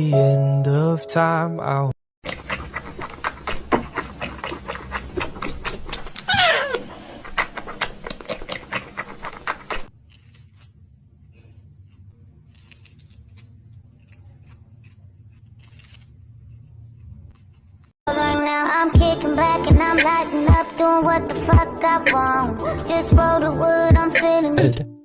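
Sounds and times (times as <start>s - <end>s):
cat meowing: 6.3s - 6.8s.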